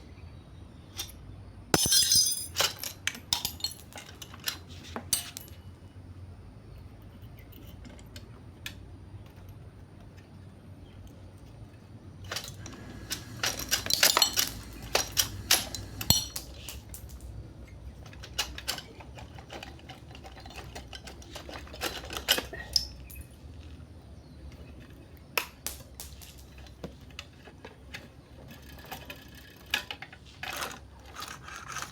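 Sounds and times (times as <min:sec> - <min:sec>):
metal parts and tools clinking: 0:01.0 - 0:05.6, 0:12.2 - 0:23.7.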